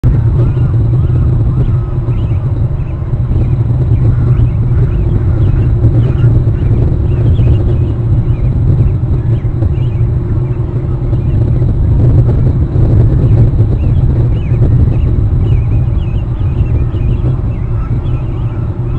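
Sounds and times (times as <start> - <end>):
wind buffeting microphone: 0.0 - 18.9
faint bird chirps: 13.2 - 18.9.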